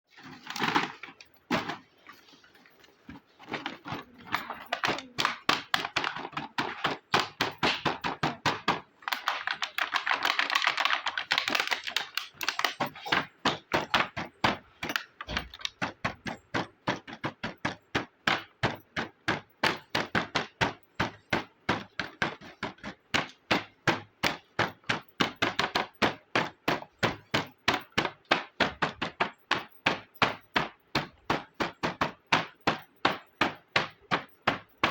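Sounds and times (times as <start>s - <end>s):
plastic toy pieces tapping: 3.5s - 34.9s.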